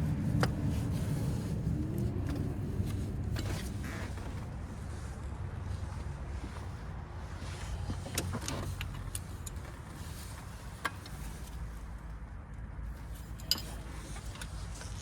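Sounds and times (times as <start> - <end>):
metallic clicks of car parts: 7.9 - 11.7, 12.5 - 15.0.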